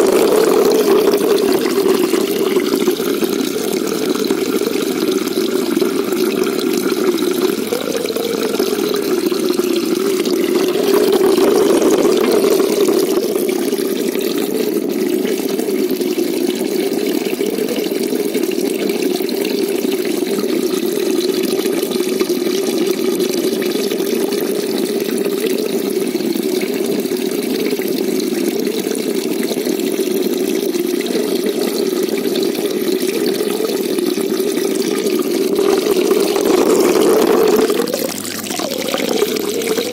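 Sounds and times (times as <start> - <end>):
muffled rush of water: 0.0 - 18.6, 31.0 - 39.9.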